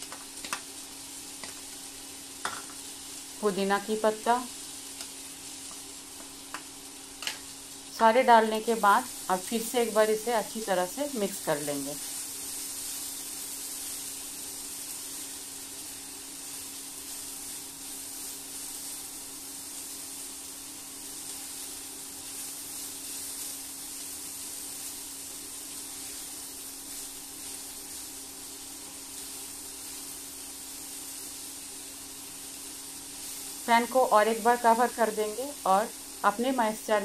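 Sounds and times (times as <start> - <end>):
vegetables sizzling in a pan: 0.0 - 37.0.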